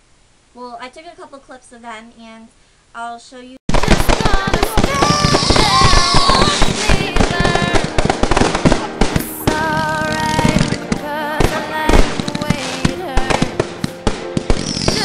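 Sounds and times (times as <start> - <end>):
fireworks bangs and crackles: 3.7 - 15.0
music playing: 4.0 - 15.0.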